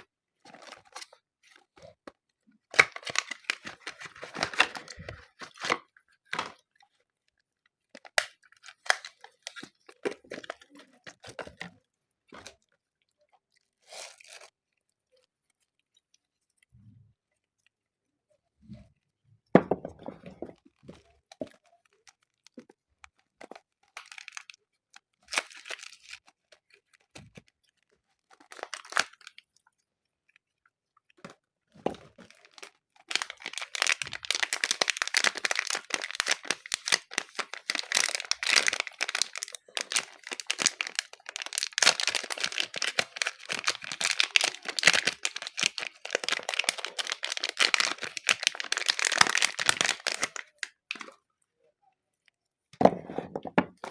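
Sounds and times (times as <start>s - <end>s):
wrapper crinkling and tearing: 0.0s - 7.1s, 7.8s - 12.7s, 13.8s - 14.6s, 20.4s - 29.7s, 32.0s - 51.2s.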